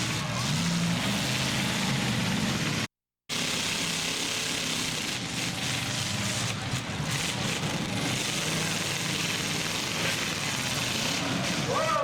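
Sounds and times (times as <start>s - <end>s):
truck engines running: 0.0s - 12.0s
arena crowd roar: 11.1s - 12.0s.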